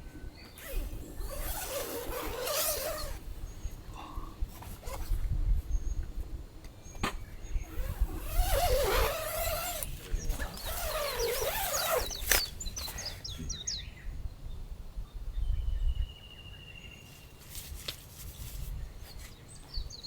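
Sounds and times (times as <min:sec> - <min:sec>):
wavering lower bird calls: 0:10.6 - 0:14.0
high falling bird chirps: 0:10.6 - 0:14.1
long steady bird whistle: 0:15.3 - 0:17.4.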